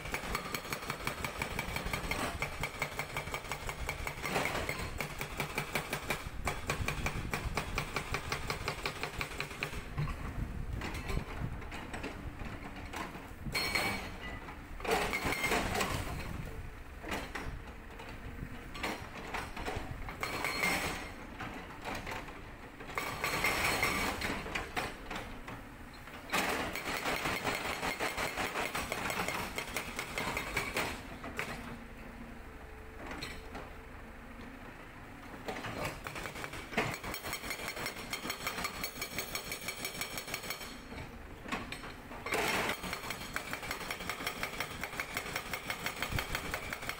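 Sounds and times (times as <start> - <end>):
hydraulic breaker hammering rock: 0.0 - 10.3, 13.4 - 16.4, 18.8 - 21.2, 22.9 - 25.3, 26.3 - 31.7, 35.5 - 46.9.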